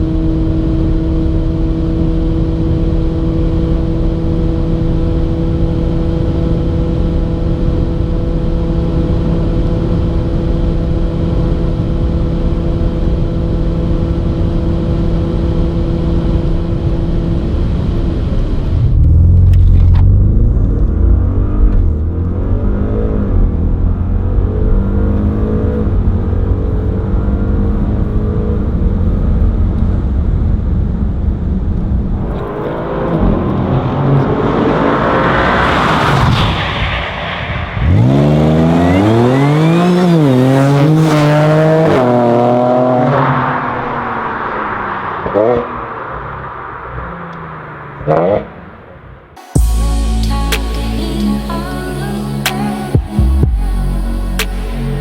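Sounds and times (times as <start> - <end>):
steady engine drone: 0.0 - 36.0, 49.4 - 55.0
car engine revving through gears: 0.4 - 29.8, 32.1 - 36.7, 37.8 - 49.2.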